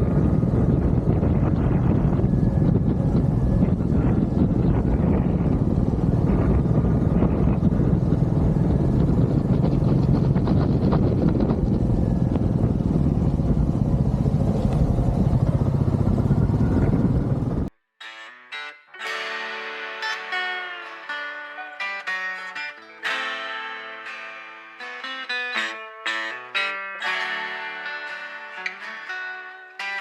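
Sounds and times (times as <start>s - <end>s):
motorcycle engine running: 0.0s - 17.7s
wind and road noise: 0.0s - 17.7s
guitar music: 18.0s - 30.0s.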